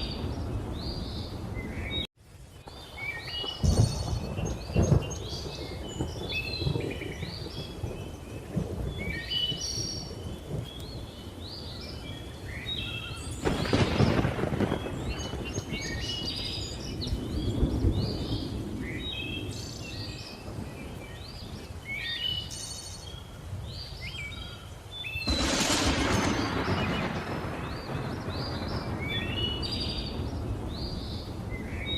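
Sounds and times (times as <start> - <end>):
thunder rumbling: 0.0 - 11.9, 12.9 - 21.8, 25.2 - 31.9
jungle birds chirping: 0.0 - 31.9.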